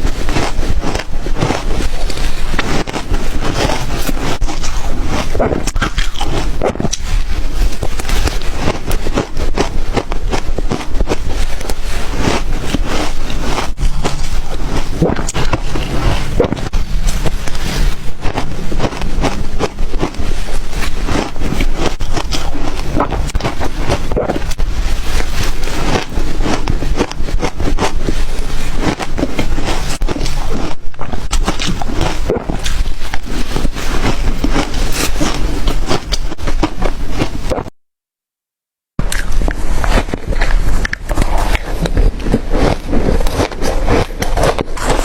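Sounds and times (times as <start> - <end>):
ice being chewed: 0.0 - 37.7, 39.0 - 45.0.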